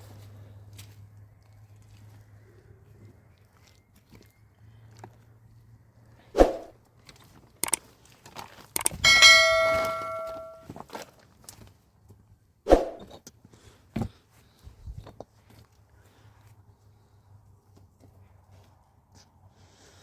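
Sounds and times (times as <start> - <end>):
metal object clanging and ringing: 8.8 - 10.6
sharp knocks: 8.8 - 10.6.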